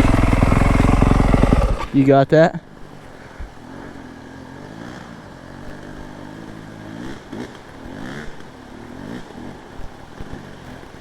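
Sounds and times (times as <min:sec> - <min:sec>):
dirt bike engine running: 0:00.0 - 0:02.2.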